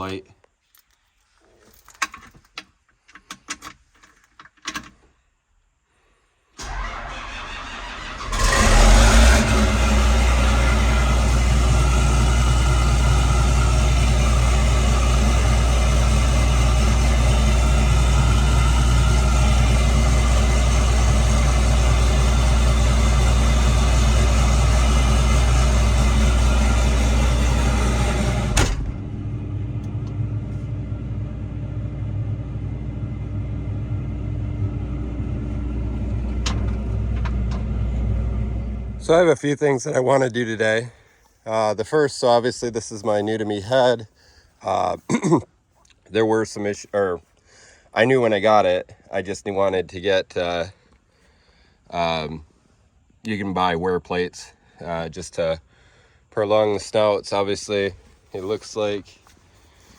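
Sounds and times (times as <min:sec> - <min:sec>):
diesel engine running: 0:06.6 - 0:39.4.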